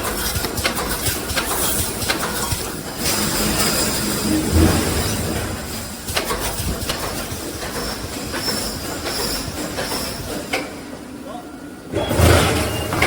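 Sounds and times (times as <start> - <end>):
welding machine clattering: 0.0 - 10.8
high whine: 3.0 - 6.8.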